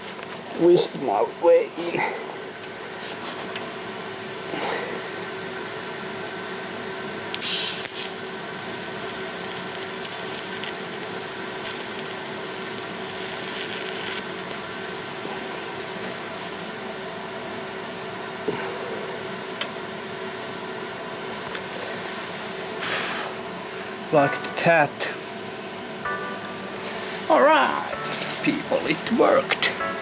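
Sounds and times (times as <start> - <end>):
crackling hiss of tack welds: 7.3 - 15.3, 22.8 - 23.4
welder humming: 7.3 - 16.8, 25.7 - 30.0.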